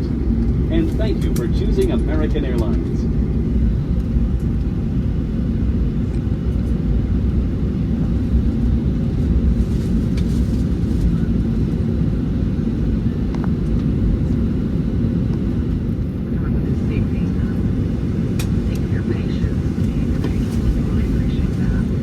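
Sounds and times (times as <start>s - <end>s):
airplane cabin rumble: 0.0s - 22.0s.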